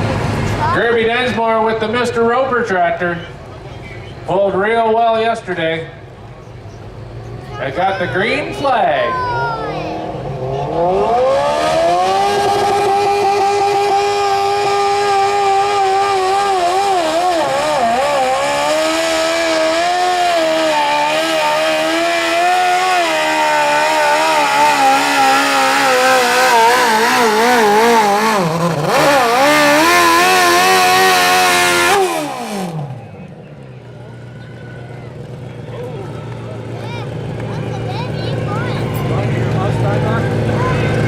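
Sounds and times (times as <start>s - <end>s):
lawn tractor engine at high revs: 9.8s - 41.0s.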